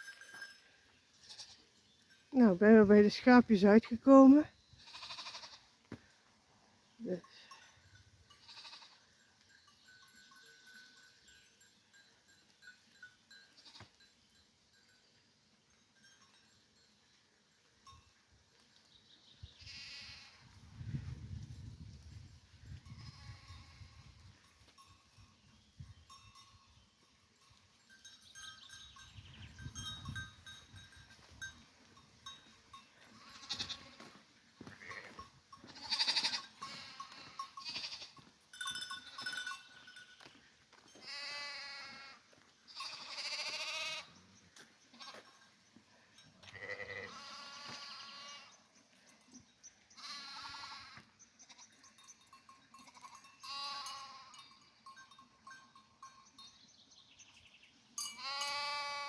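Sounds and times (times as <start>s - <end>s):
animal bells ringing faintly: 0.0s - 59.0s
sheep bleating: 1.2s - 1.6s, 4.8s - 5.7s, 8.4s - 9.0s, 19.6s - 20.4s, 33.0s - 38.2s, 41.0s - 44.2s, 46.4s - 48.6s, 50.0s - 51.7s, 52.8s - 54.5s, 58.1s - 59.0s.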